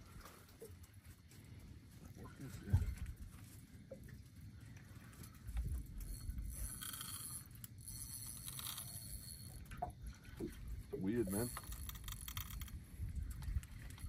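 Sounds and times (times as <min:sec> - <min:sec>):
fishing reel ticking: 0:05.2 - 0:14.0.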